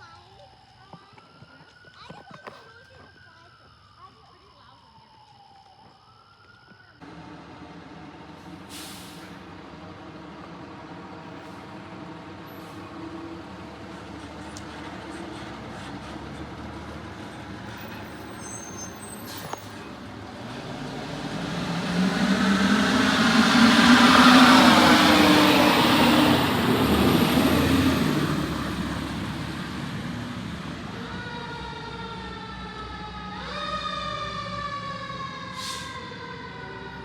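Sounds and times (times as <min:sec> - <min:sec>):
diesel engine running: 0:07.0 - 0:37.0
air brake hiss: 0:08.4 - 0:09.4, 0:35.5 - 0:36.0.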